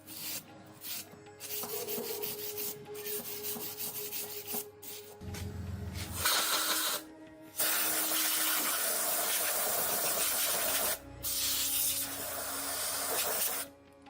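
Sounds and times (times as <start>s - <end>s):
compressed air hissing: 5.9s - 13.7s.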